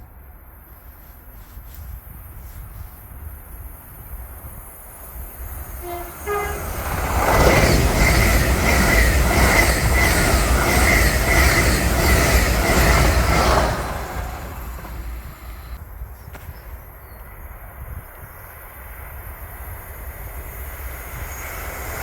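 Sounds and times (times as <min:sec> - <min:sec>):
train wheels on rails: 0:05.0 - 0:16.6, 0:17.6 - 0:22.0
train two-note horn: 0:05.8 - 0:08.2.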